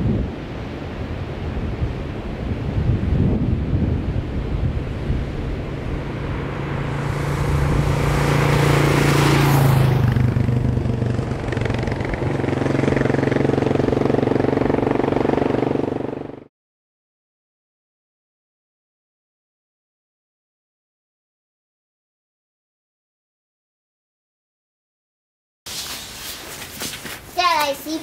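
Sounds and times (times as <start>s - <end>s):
motorcycle engine running: 5.4s - 16.5s.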